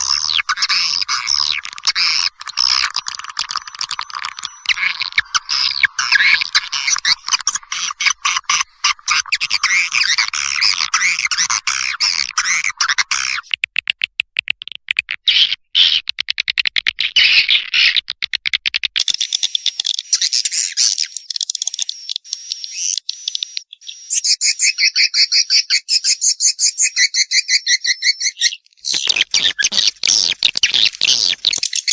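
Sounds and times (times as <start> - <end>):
high buzzing chirps: 0.0 - 13.4
swiftlet twittering chirps: 0.0 - 13.5.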